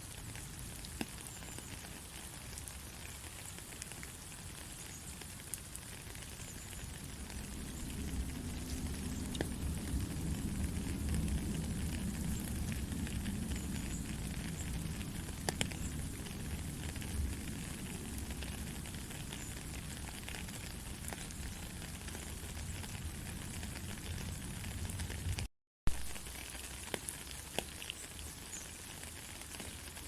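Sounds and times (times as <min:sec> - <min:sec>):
gentle rain hiss: 0:00.0 - 0:30.0
raindrop ticks: 0:00.2 - 0:30.0.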